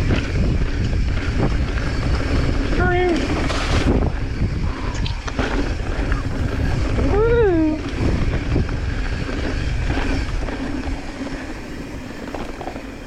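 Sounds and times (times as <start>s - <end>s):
tyres rumbling on trail: 0.0s - 13.0s
wind buffeting microphone: 0.0s - 13.0s.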